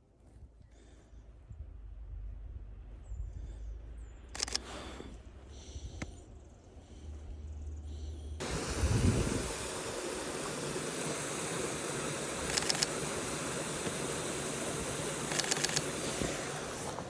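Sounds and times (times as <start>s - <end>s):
sharp clicks: 4.3s - 4.9s, 5.9s - 6.2s, 12.0s - 16.9s
waterfall rushing: 8.4s - 15.4s.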